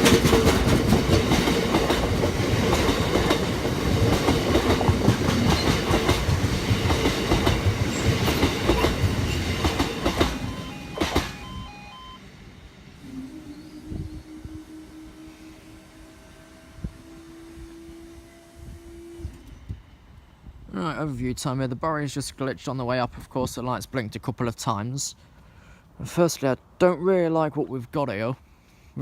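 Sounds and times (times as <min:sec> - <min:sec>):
train wheels rattling over rail joints: 0:00.0 - 0:11.4.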